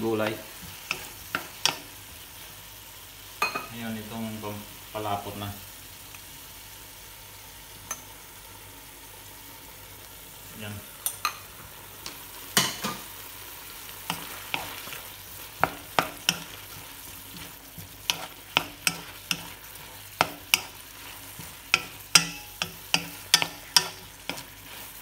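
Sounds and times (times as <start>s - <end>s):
vegetables sizzling in a wok: 0.0s - 25.0s
spatula knocking against pan: 15.6s - 16.9s, 21.4s - 24.5s.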